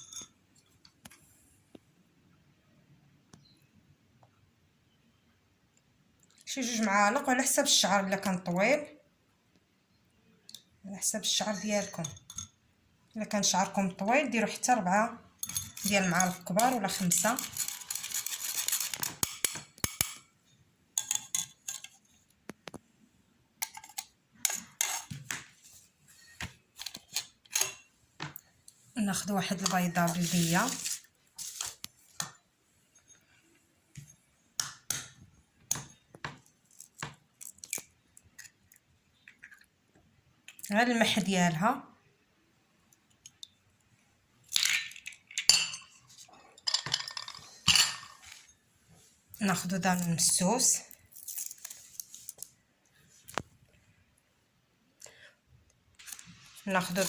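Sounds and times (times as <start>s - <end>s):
metal spoon scraping a pot: 15.4s - 20.2s, 21.0s - 22.1s, 23.6s - 25.2s, 29.5s - 31.8s.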